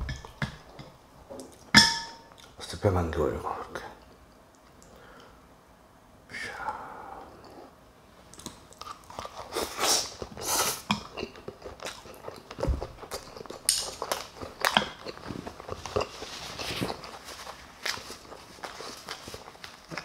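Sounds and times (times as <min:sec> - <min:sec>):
person chewing food: 0:08.3 - 0:20.0.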